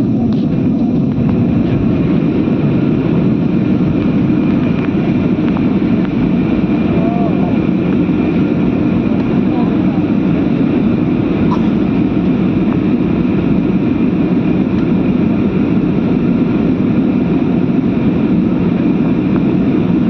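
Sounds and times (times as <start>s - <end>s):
airliner cabin engine rumble: 0.0s - 20.0s.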